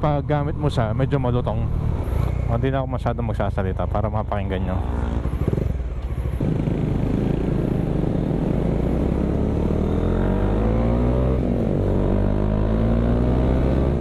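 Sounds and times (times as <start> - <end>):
motorcycle engine accelerating: 4.8 - 14.0.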